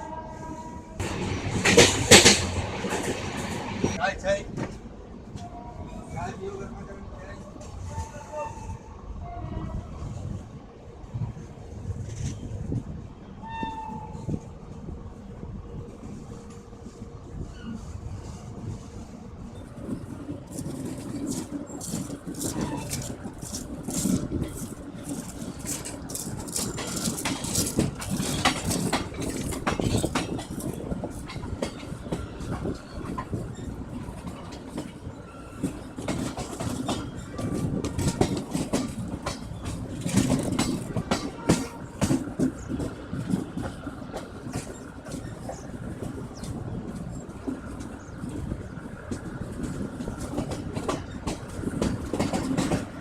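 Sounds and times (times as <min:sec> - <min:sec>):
train coach rumble: 0:00.0 - 0:53.0
wheels clicking over rail joints: 0:01.0 - 0:06.1, 0:19.6 - 0:53.0.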